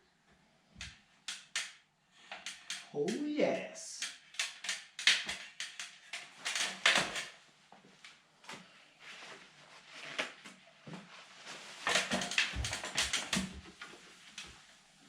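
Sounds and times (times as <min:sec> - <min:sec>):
rustling: 0:04.2 - 0:15.0.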